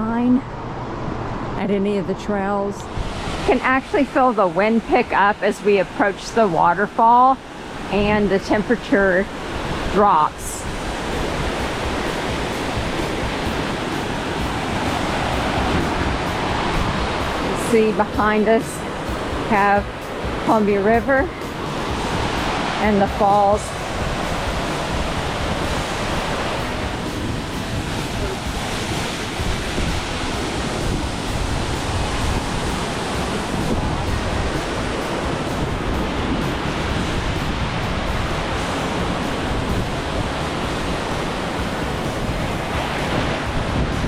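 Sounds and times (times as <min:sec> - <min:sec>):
wind buffeting microphone: 0:00.0 - 0:44.0
waterfall rushing: 0:02.8 - 0:44.0.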